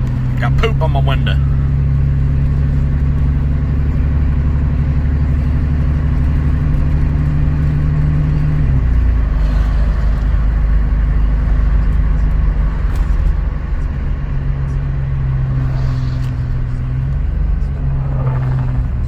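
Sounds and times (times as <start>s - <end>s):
pickup engine drone: 0.0s - 19.0s
road noise: 0.0s - 19.0s.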